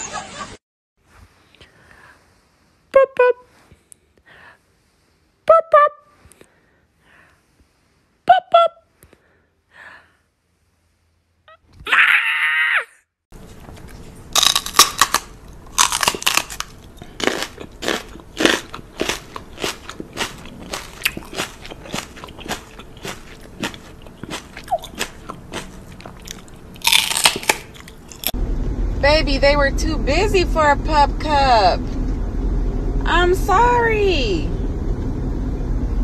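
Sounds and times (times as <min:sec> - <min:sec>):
person chewing crunchy food: 0:13.4 - 0:28.4.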